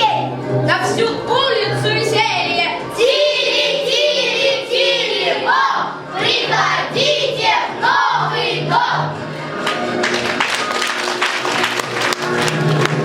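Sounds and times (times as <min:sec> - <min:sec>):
instrumental backing music: 0:00.0 - 0:13.0
children singing: 0:02.4 - 0:09.2.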